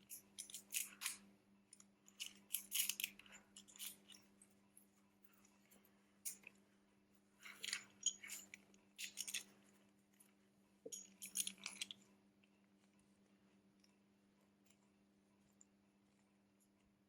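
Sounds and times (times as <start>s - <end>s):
hands handling small parts: 0.0s - 4.4s, 7.4s - 9.6s, 10.3s - 12.0s.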